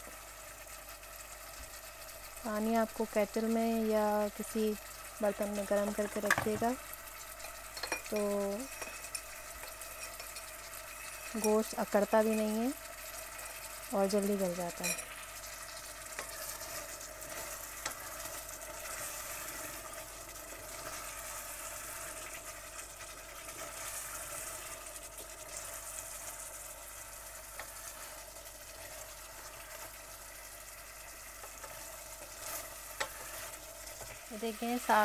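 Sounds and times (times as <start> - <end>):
curry sizzling in a pan: 0.0 - 35.0
spoon knocking against pan: 6.3 - 6.7
spoon stirring: 7.4 - 11.7, 14.8 - 15.2, 31.5 - 34.2.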